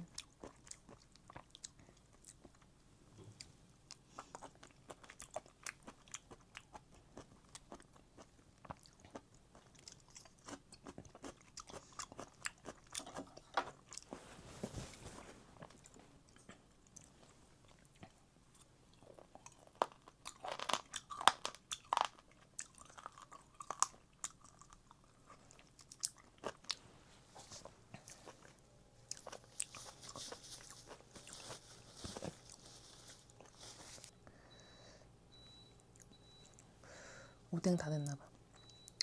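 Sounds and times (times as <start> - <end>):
person chewing crunchy food: 0.1 - 2.7, 3.4 - 14.2, 15.6 - 26.8, 27.4 - 34.1.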